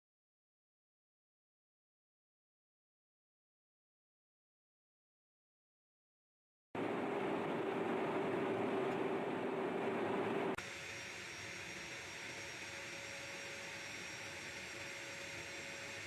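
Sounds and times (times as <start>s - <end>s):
jet engine running: 6.8s - 16.0s.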